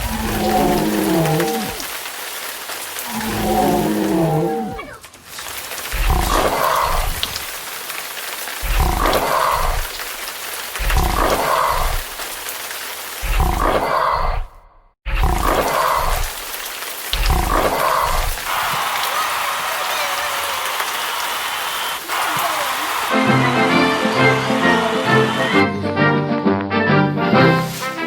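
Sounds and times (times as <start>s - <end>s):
monster-like roar: 0.0s - 1.9s, 3.0s - 5.1s, 5.9s - 7.4s, 8.6s - 10.0s, 10.8s - 12.1s, 13.2s - 16.4s, 17.2s - 21.4s
rain hissing: 0.0s - 25.9s.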